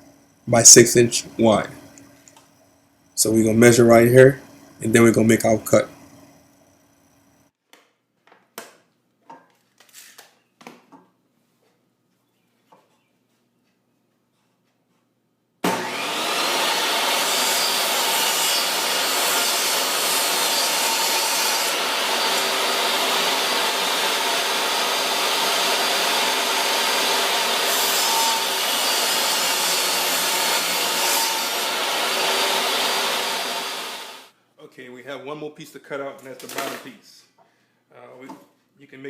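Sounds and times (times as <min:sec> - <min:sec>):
power saw cutting wood: 0:15.6 - 0:34.3.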